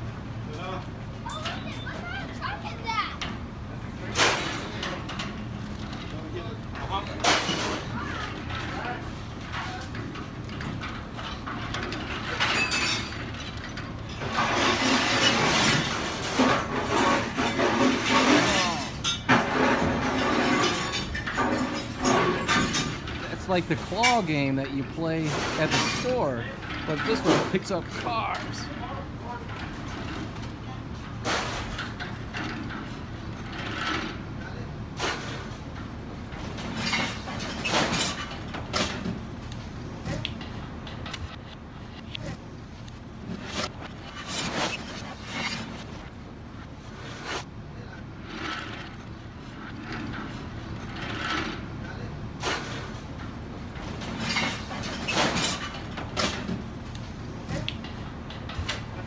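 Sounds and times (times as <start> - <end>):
metal scraping and crunching: 4.0 - 59.0
glass breaking: 12.2 - 13.5, 14.1 - 24.3, 25.1 - 28.1.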